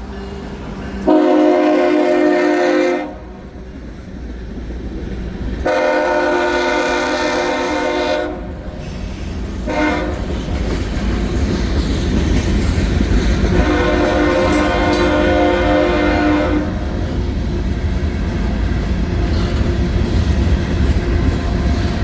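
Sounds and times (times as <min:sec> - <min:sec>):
low rumble of train: 0:00.0 - 0:22.0
locomotive horn blasts: 0:01.0 - 0:03.4, 0:05.6 - 0:08.5, 0:09.6 - 0:10.3, 0:13.5 - 0:17.0.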